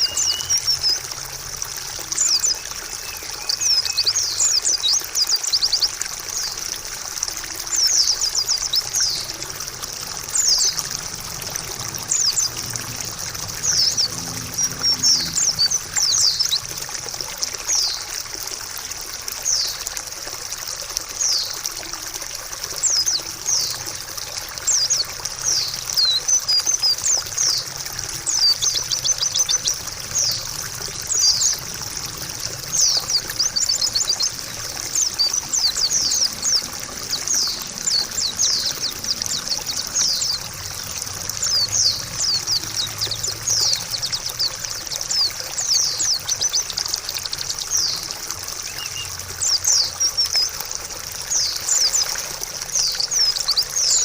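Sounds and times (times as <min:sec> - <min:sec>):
bird singing high chirps: 0:00.0 - 0:01.1, 0:02.2 - 0:05.8, 0:11.7 - 0:16.7, 0:47.4 - 0:50.5
trickling water: 0:00.0 - 0:54.0.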